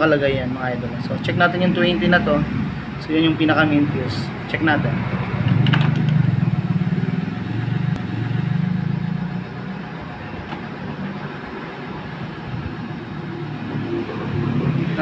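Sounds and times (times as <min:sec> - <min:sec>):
small motorcycle engine running: 0:04.8 - 0:15.0.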